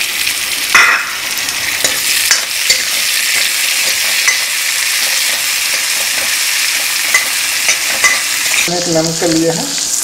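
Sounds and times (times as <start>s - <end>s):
vegetables sizzling in hot oil: 0.0s - 10.0s
ladle tapping pan: 1.8s - 8.7s.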